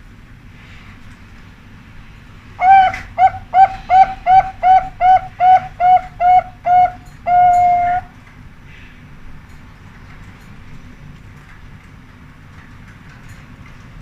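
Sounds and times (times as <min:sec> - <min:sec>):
zebra dove cooing: 0:02.6 - 0:08.1.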